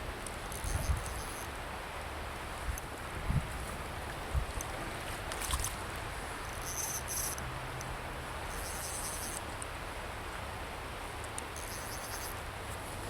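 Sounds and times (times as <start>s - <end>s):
creek water running: 0.0s - 13.0s
short high-pitched buzzes: 0.5s - 1.5s, 6.5s - 7.4s, 8.5s - 9.5s, 11.5s - 12.4s.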